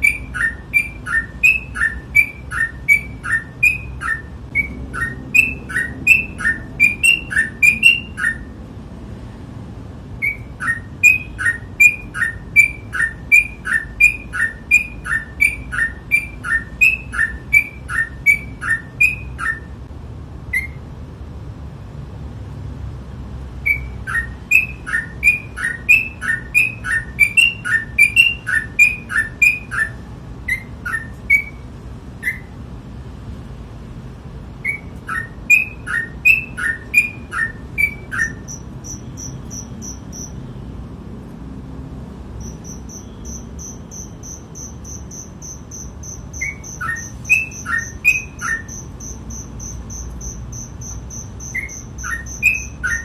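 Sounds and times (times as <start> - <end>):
bird chirping in quick bursts: 0.0 - 8.6, 10.1 - 19.9, 20.5 - 20.9, 23.6 - 32.6, 34.6 - 40.6, 42.3 - 53.0
high-pitched pulsing trill: 0.0 - 8.6, 34.7 - 40.4, 42.4 - 53.0.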